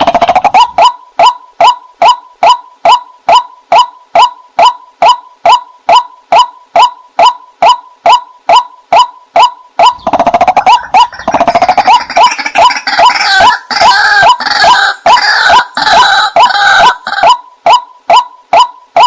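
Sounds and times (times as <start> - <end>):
waterhen kwak calls: 9.4 - 18.7
rattling bird chatter: 10.0 - 13.4.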